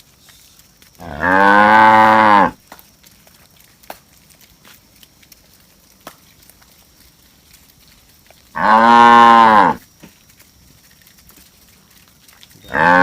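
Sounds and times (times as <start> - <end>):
cow mooing: 1.0 - 2.6, 8.6 - 9.8, 12.7 - 13.0.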